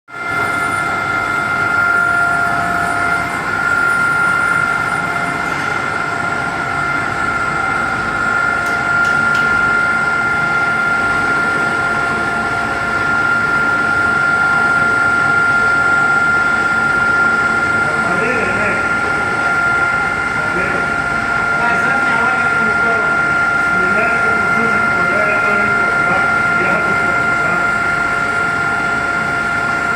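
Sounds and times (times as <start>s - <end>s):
cutter machine running with whine: 0.1s - 29.9s.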